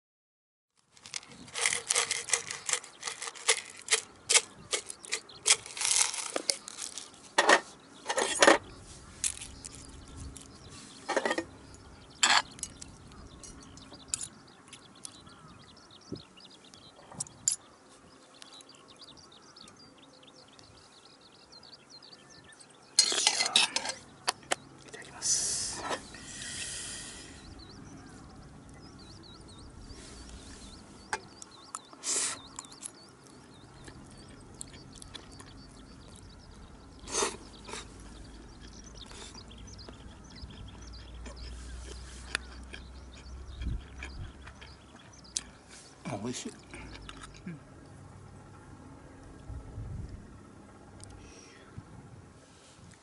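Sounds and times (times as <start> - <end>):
utensils clinking on cookware: 23.0 - 24.0.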